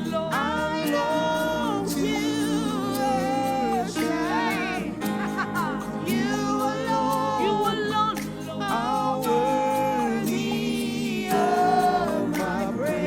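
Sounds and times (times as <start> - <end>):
person singing worship song: 0.0 - 13.0.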